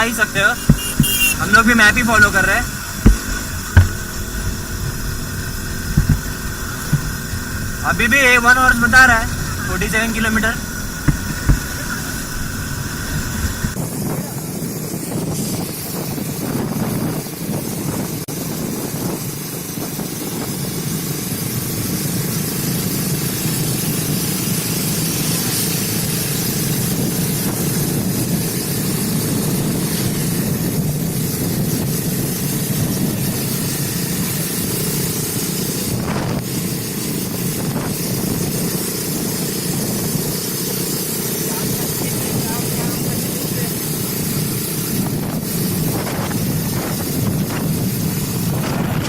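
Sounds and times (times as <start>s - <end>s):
motorcycle engine and tyre noise: 0.0s - 49.0s
wind hiss on microphone: 0.0s - 49.0s.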